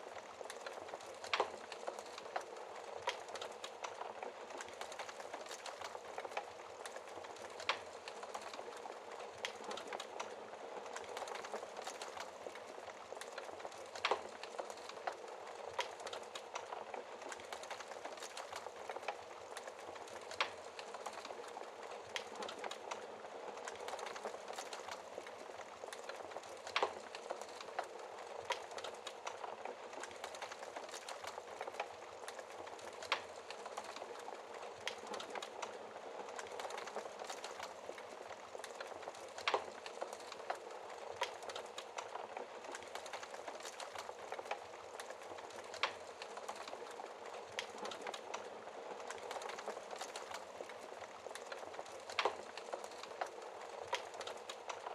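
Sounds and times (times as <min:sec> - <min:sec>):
steady hiss of fire: 0:00.0 - 0:54.9
wood fire crackling: 0:00.0 - 0:54.9.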